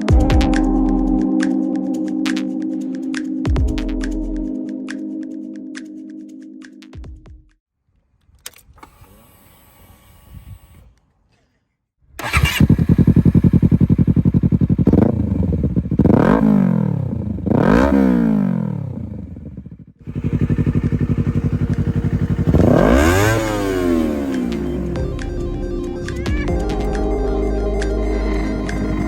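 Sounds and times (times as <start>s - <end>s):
motorcycle engine idling: 12.2s - 16.3s, 19.0s - 27.4s
motorcycle throttle blips: 12.2s - 25.4s.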